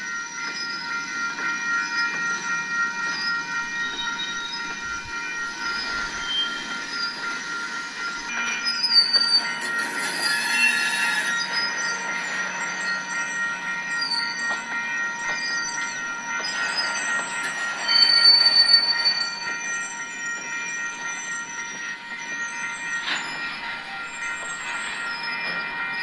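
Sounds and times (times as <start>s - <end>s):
freight car wheels squealing: 8.6s - 11.7s.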